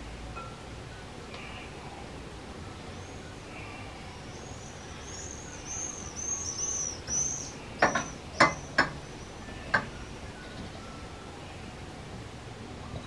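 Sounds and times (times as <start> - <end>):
steady background hiss: 0.0 - 13.0
small bird chirping: 2.8 - 11.8
sharp clicks or knocks: 7.8 - 9.0.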